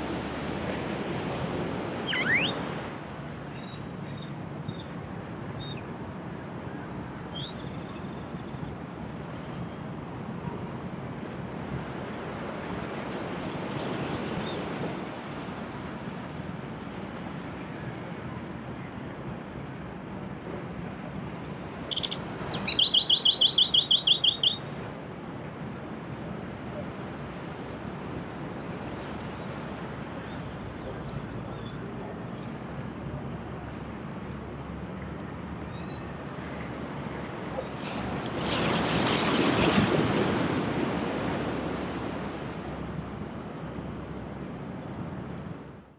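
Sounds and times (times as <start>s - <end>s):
bird calling: 2.1s - 2.6s, 21.9s - 24.6s
wind on microphone: 37.9s - 43.6s.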